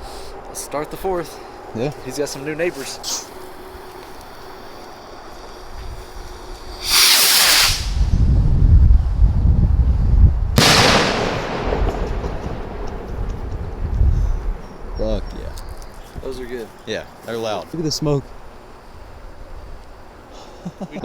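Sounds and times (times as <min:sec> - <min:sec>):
rocket launching hiss: 0:05.4 - 0:09.1, 0:10.0 - 0:15.0
firework bang rumbling: 0:06.7 - 0:08.9, 0:10.5 - 0:15.5.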